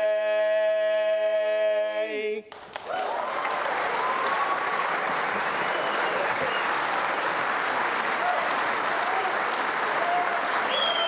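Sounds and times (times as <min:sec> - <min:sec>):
audience applauding: 0:02.5 - 0:11.0
voices cheering: 0:02.6 - 0:11.0.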